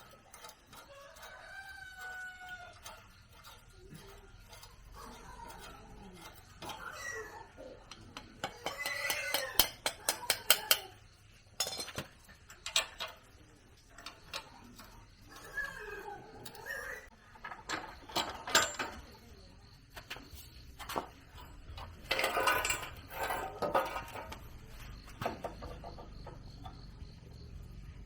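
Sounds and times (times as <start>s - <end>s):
animal calling: 5.0s - 7.9s, 15.3s - 17.1s
metallic clinks and taps: 7.9s - 11.0s, 11.6s - 13.3s.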